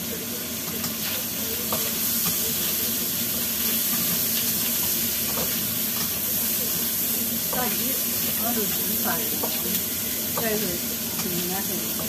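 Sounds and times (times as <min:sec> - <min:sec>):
meat sizzling in a wok: 0:00.0 - 0:12.0
spatula tapping: 0:09.4 - 0:12.0.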